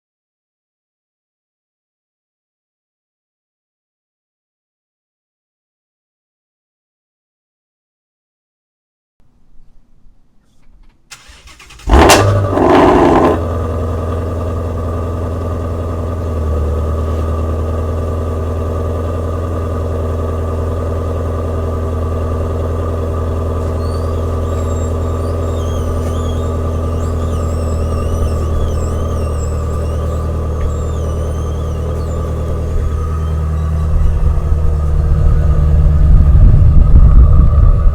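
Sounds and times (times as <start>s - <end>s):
car engine starting and idling: 11.1s - 37.9s.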